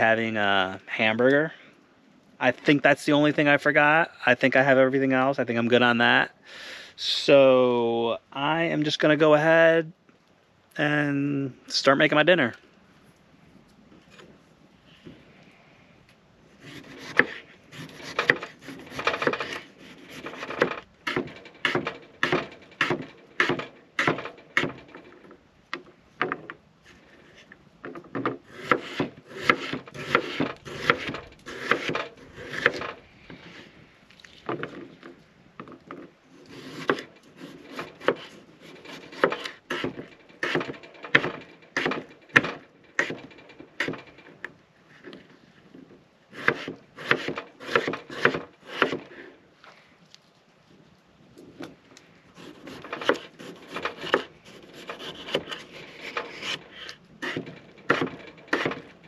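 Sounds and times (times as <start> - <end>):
knife cutting on wooden board: 16.6 - 24.8, 28.5 - 32.9, 36.5 - 42.1, 46.4 - 49.1, 52.4 - 58.8.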